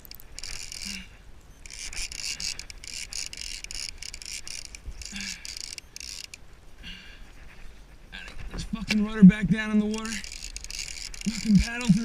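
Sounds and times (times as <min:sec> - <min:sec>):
fishing reel drag buzzing: 0:00.0 - 0:06.4, 0:09.9 - 0:12.0.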